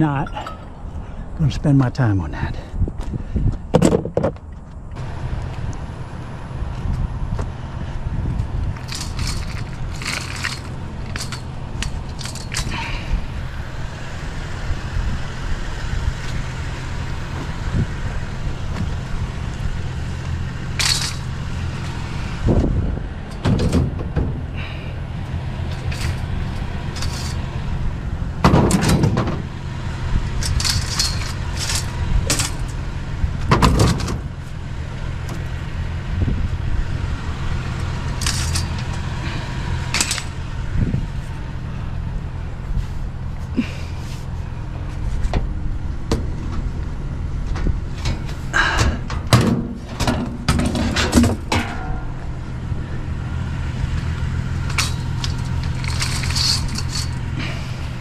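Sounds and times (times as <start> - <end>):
vehicle engine idling: 4.4 - 58.0
scrap metal clanking: 8.6 - 13.4, 20.0 - 25.0, 25.6 - 32.8, 33.4 - 34.6, 37.8 - 45.5, 47.5 - 53.0, 53.6 - 58.0.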